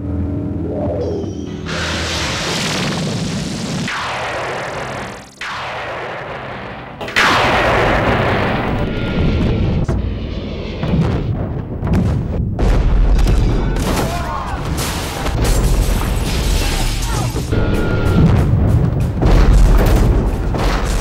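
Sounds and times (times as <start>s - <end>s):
film soundtrack music: 0.0s - 16.2s
weapon blasts: 1.6s - 9.0s
explosion: 1.6s - 9.8s.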